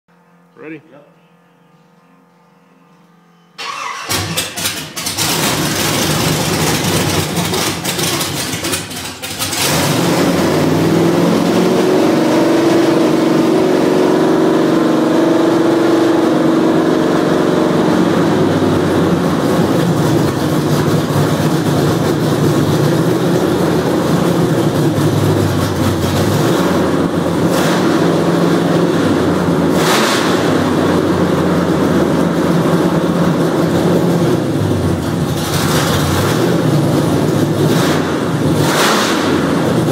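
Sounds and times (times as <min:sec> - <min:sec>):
engine starting and idling: 0:03.6 - 0:11.0.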